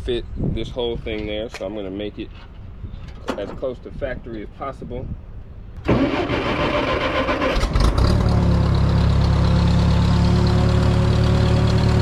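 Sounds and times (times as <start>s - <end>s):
engine cranking on starter: 5.8s - 8.5s.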